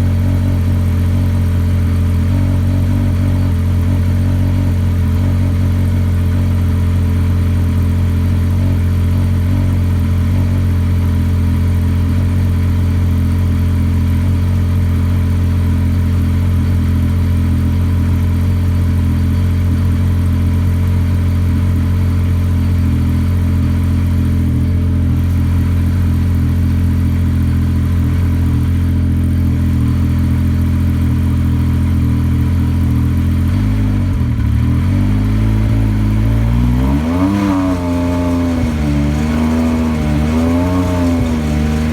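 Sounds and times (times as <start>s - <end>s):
snowmobile engine idling: 0.0s - 41.9s.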